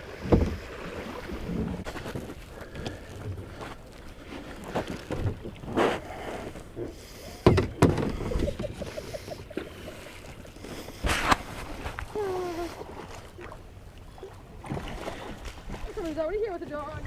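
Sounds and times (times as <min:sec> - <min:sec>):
boat hull knocking and splashing: 0:00.0 - 0:06.1, 0:07.3 - 0:12.1.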